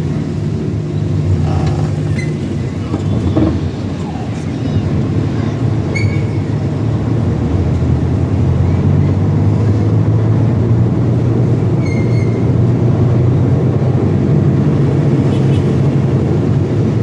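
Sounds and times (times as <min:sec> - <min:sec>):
truck engine droning: 0:00.0 - 0:17.0
short high squeaks: 0:01.3 - 0:03.7, 0:05.9 - 0:06.4, 0:11.8 - 0:12.5.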